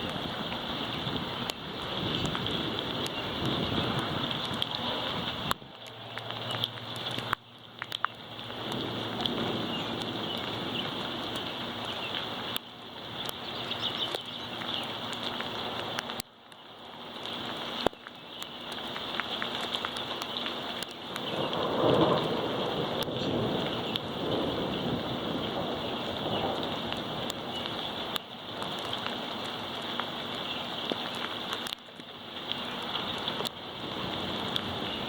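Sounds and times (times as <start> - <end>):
thunder rumbling: 0.0 - 7.3, 8.3 - 12.5, 21.2 - 29.0
heavy rain falling: 0.0 - 35.0.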